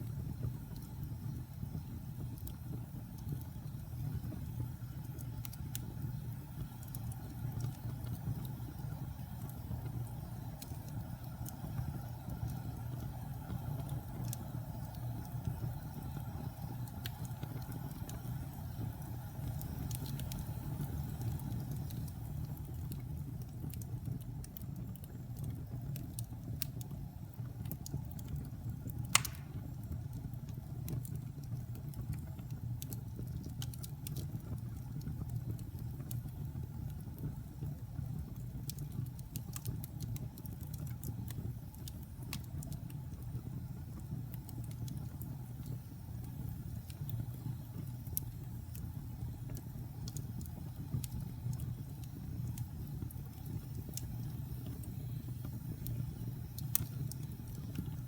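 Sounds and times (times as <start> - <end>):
fire crackling: 0.0 - 58.0
fire flames rumbling: 0.0 - 58.0
sharp loud fire pop: 29.2 - 29.6.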